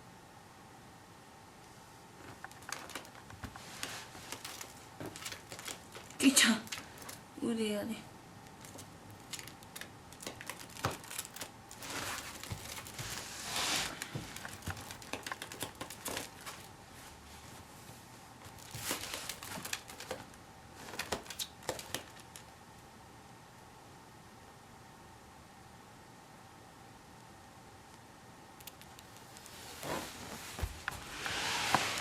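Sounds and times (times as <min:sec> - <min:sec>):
soft rustling and crinkling: 0:01.6 - 0:22.6, 0:28.6 - 0:32.0
small clicks and taps: 0:28.6 - 0:29.4.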